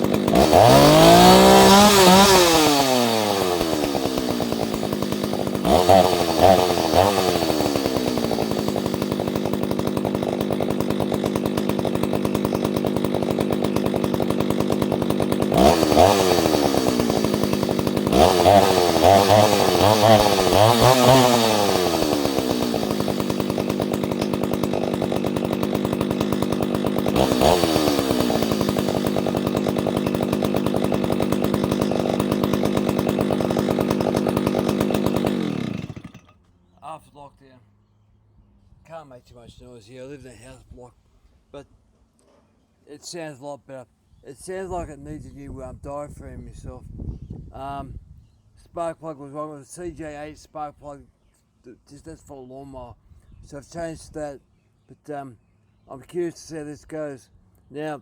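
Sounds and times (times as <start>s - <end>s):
chainsaw idling and revving: 0.0s - 36.5s.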